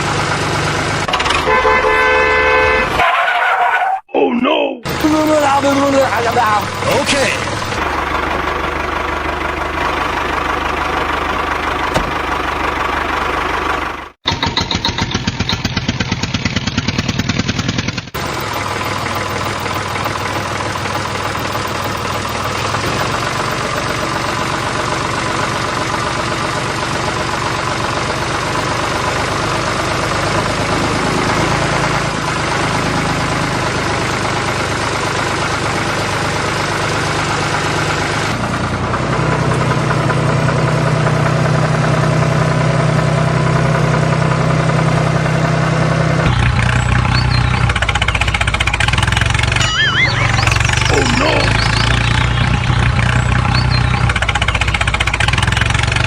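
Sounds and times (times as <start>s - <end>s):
engine idling with pulsing beat: 4.9s - 30.4s, 46.3s - 56.0s.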